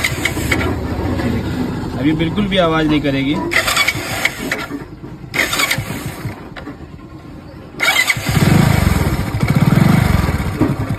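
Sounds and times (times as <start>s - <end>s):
motorcycle starter cranking: 0.0s - 1.0s, 3.4s - 7.1s, 7.8s - 10.9s
motorcycle engine running: 0.0s - 10.9s.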